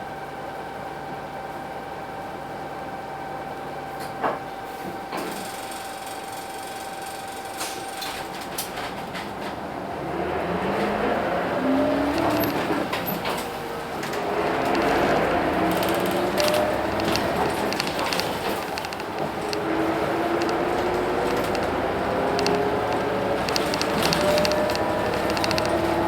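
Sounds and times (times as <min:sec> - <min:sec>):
bus engine accelerating: 0:08.4 - 0:26.0
mechanical clicks and knocks: 0:14.0 - 0:26.0.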